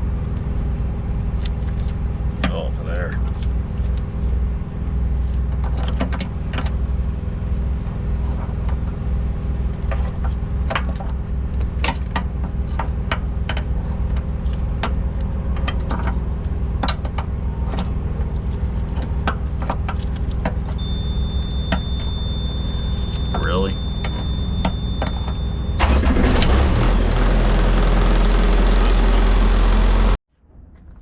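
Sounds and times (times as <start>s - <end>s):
truck engine idling: 6.3s - 30.2s.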